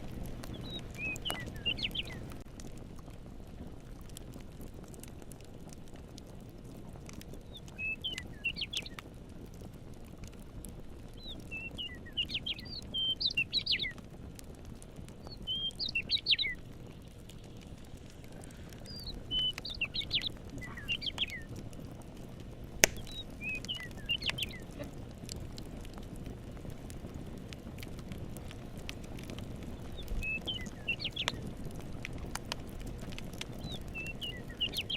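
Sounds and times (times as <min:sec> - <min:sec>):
campfire crackling: 0:00.0 - 0:34.9
fire popping: 0:00.0 - 0:34.9
songbird chirps and trills: 0:00.4 - 0:02.4, 0:07.4 - 0:09.0, 0:11.1 - 0:14.0, 0:15.2 - 0:21.6, 0:22.8 - 0:24.9, 0:29.7 - 0:31.4, 0:33.5 - 0:34.9.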